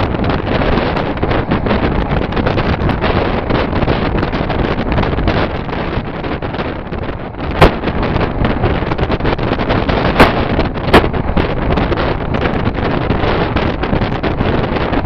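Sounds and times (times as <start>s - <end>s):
train running on rails: 0.0s - 15.0s
wind buffeting microphone: 0.0s - 15.0s
sharp loud clack: 7.5s - 8.1s, 9.8s - 11.6s.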